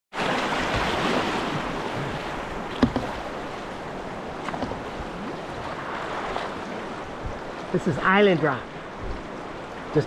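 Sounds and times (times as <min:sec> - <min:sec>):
river water rushing: 0:00.2 - 0:10.0
knocks on kayak: 0:00.7 - 0:03.4, 0:04.4 - 0:05.0.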